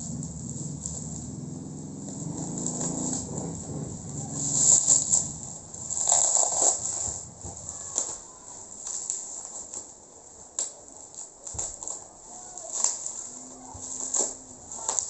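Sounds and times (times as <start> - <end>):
packaging rustling and crinkling: 4.3 - 15.0.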